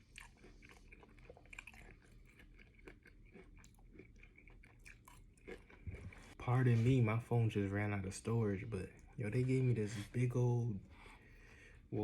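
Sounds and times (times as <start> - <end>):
close-up chewing: 0.0 - 7.0.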